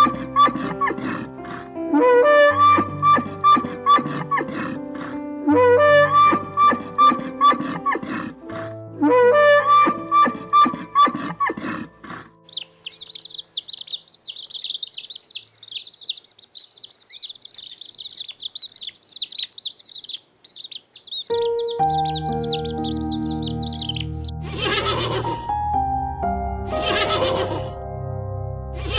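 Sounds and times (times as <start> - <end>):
baby chicks cheeping: 10.1 - 25.5
instrumental music: 21.3 - 28.9.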